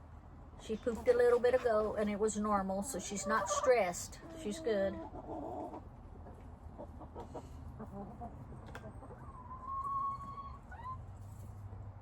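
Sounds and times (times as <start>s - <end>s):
chickens clucking: 0.8s - 11.4s
drawn-out chicken call: 7.0s - 11.0s.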